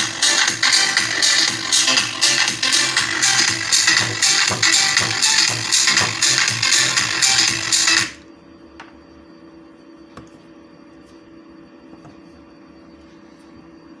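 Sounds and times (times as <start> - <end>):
electronic dance music: 0.0 - 8.2
faint electrical hum: 6.6 - 14.0.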